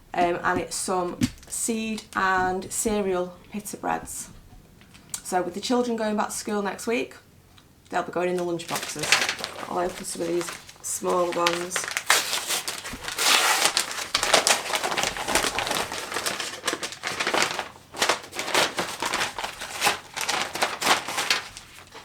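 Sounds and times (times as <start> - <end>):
packaging torn open and crinkling: 8.7 - 22.0.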